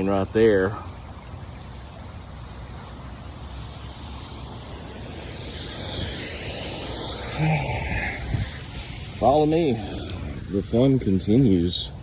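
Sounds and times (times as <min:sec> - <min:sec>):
water rushing into a drain: 0:00.0 - 0:12.0.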